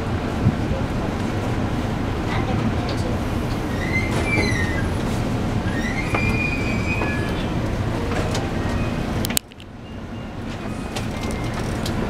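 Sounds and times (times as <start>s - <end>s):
train wheels rumbling: 0.0s - 12.0s
brake squeals: 3.6s - 9.2s, 9.8s - 12.0s.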